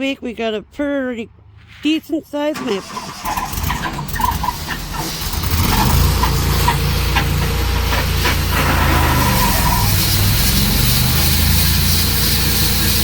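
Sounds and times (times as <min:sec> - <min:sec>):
sawmill engine running: 0:02.5 - 0:13.0
short high squeaks: 0:02.6 - 0:10.4.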